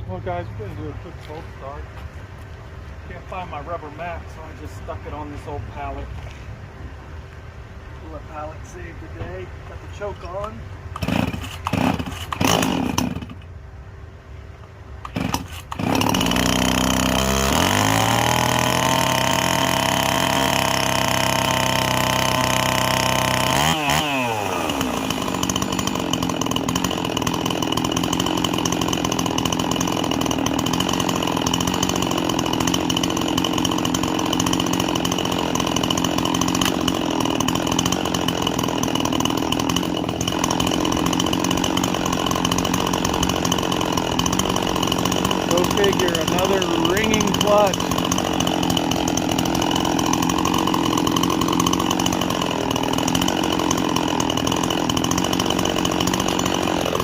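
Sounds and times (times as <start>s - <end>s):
chainsaw engine idling: 8.4s - 13.5s, 15.0s - 57.0s
starter rope pulls: 9.9s - 13.5s, 15.0s - 57.0s.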